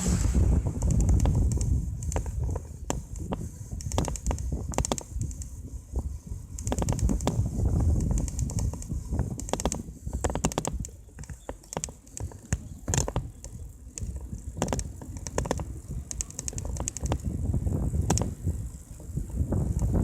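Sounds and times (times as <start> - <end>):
bike clicks and rattles: 0.0 - 20.0
wind on microphone: 0.0 - 20.0.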